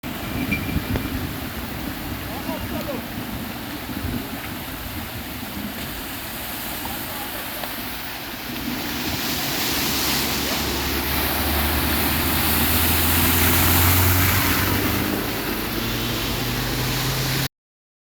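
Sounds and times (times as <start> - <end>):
heavy rain hissing: 1.3 - 17.5
vehicle engine driving past: 9.4 - 17.5.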